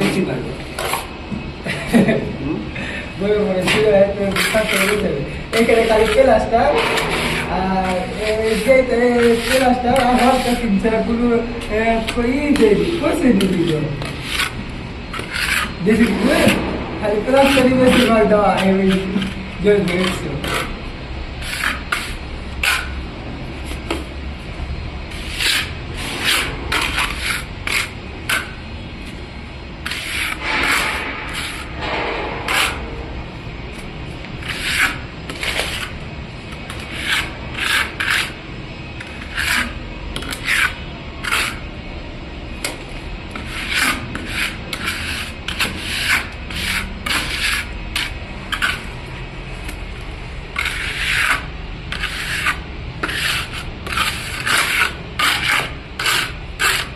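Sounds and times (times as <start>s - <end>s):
rasping scraping strokes: 4.2s - 11.1s, 12.0s - 20.8s, 29.8s - 32.9s, 34.4s - 36.0s, 36.6s - 38.4s, 39.0s - 41.7s, 43.3s - 49.1s, 50.6s - 56.9s.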